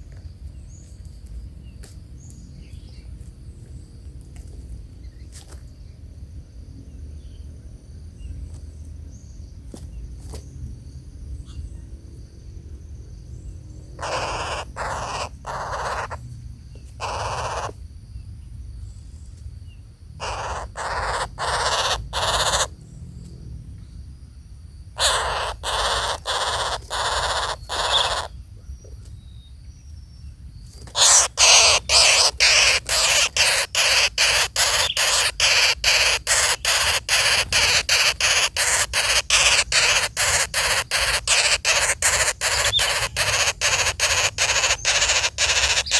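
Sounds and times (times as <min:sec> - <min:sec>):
bird rasping calls: 0:14.0 - 0:16.2, 0:17.0 - 0:17.8, 0:20.2 - 0:22.7, 0:25.0 - 0:28.4, 0:30.8 - 0:45.9.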